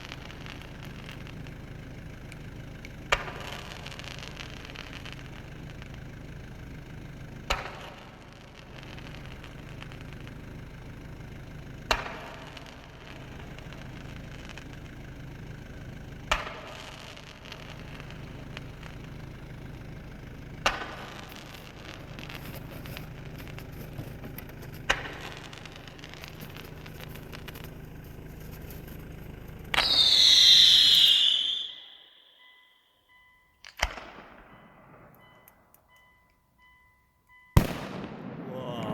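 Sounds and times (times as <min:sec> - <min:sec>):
fireworks bangs: 0:00.0 - 0:15.6, 0:16.2 - 0:32.4, 0:33.6 - 0:35.7, 0:37.6 - 0:38.9
vehicle engine idling: 0:00.0 - 0:38.9
loud whistling: 0:29.7 - 0:33.6.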